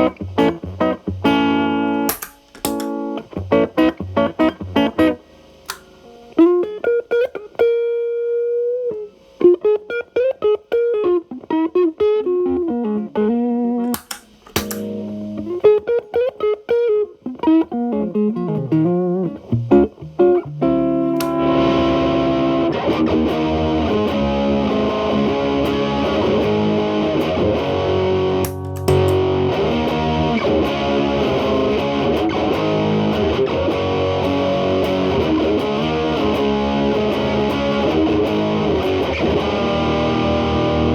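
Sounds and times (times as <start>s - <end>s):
distorted electric guitar: 0.0s - 40.9s.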